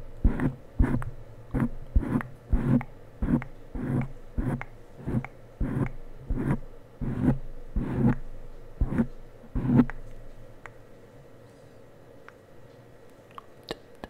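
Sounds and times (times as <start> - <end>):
rhythmic rubbing strokes: 0.0 - 10.0.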